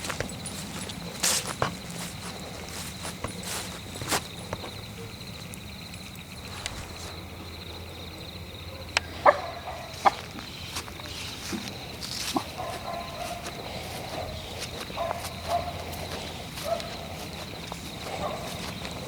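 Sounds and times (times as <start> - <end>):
footsteps on forest floor: 0.0 - 4.9, 6.4 - 7.2, 9.8 - 19.0.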